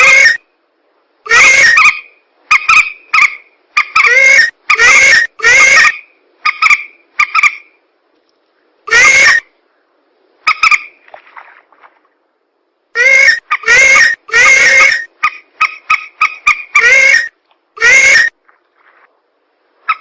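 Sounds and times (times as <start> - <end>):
distorted recorded rail bird calls: 0.0 - 0.5, 1.3 - 7.8, 8.4 - 11.1, 13.0 - 18.4, 19.8 - 20.0.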